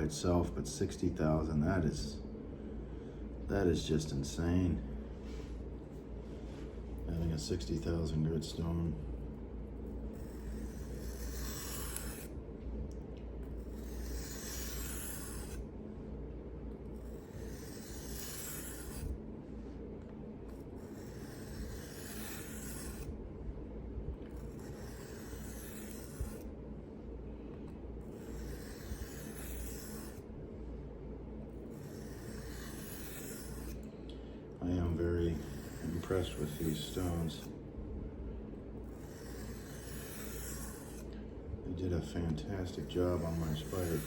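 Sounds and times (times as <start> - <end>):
steady low hum: 0.0 - 44.0
knife scraping on sharpening stone: 10.2 - 12.3, 17.1 - 19.1, 20.9 - 23.0, 24.5 - 26.4, 28.2 - 30.2, 31.7 - 33.8, 39.0 - 41.0.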